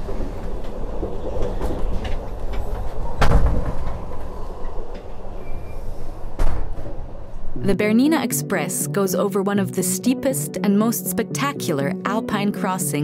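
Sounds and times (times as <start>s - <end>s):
moving train low rumble: 0.0s - 7.8s.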